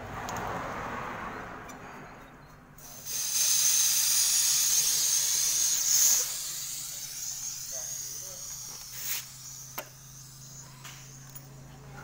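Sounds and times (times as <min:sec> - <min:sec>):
gas hissing from a valve: 0:02.8 - 0:11.6.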